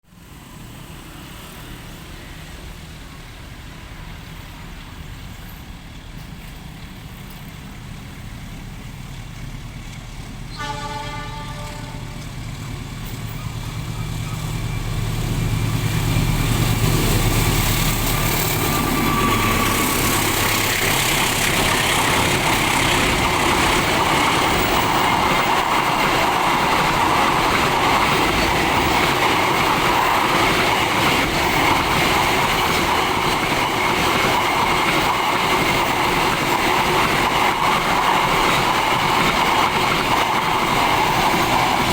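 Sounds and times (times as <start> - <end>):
train wheels clattering on rails: 1.1 - 41.9
locomotive engine rumble: 4.4 - 41.9
train horn blast: 10.5 - 12.4.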